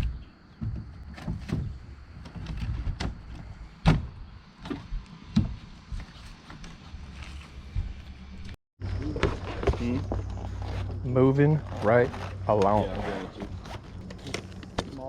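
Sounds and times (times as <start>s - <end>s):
sharp knocks and thumps: 0.0s - 6.8s.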